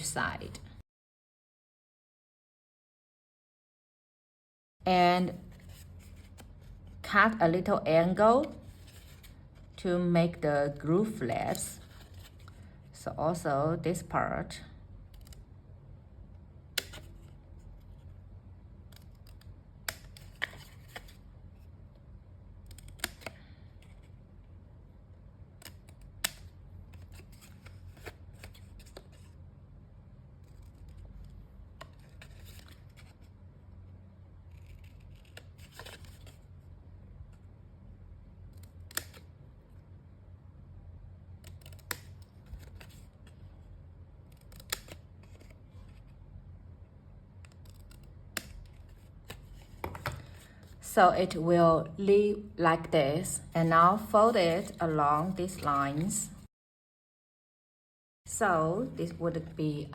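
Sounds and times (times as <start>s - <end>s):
scissors snipping cardstock: 41.4s - 43.0s.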